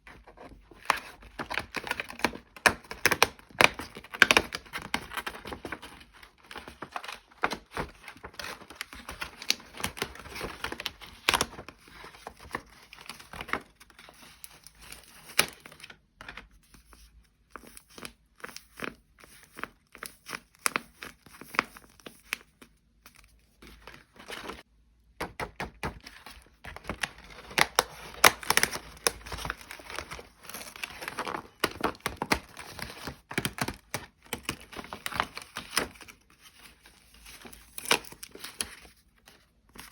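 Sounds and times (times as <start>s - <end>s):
paper crinkling and tearing: 26.1s - 39.9s.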